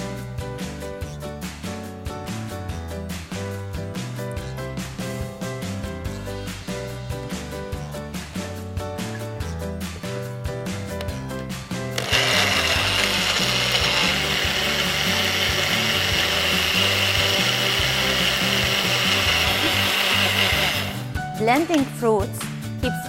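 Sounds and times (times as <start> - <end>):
background music: 0.0 - 23.0
blender running: 12.0 - 21.1.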